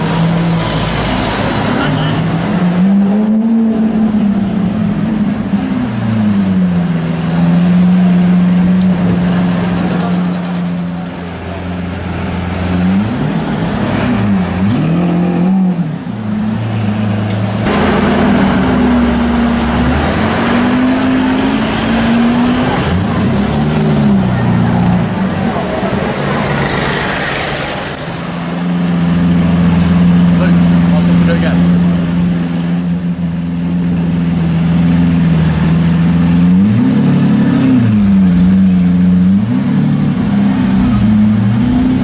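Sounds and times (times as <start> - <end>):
engine revving: 0.0 - 42.0
car engine running: 15.8 - 42.0.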